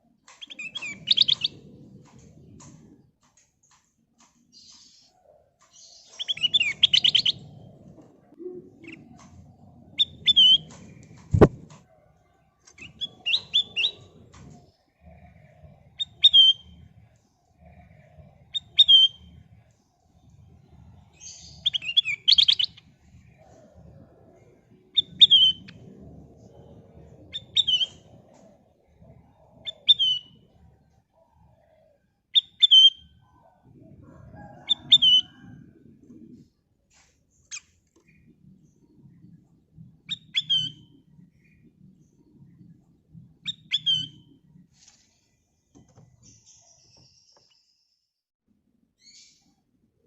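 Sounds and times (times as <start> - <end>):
bulbul calling: 5.7 - 7.6, 9.9 - 11.8
faint low rumble: 22.7 - 31.6, 37.8 - 44.7.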